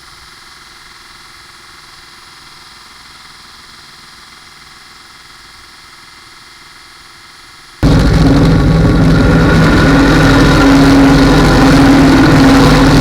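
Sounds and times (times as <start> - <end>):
belt grinder motor humming: 7.8 - 13.0.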